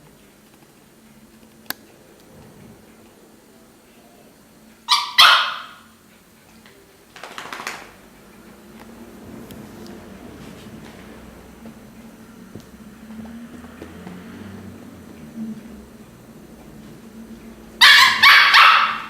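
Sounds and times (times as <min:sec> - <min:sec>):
dog barking: 0:04.9 - 0:06.0, 0:17.8 - 0:19.0.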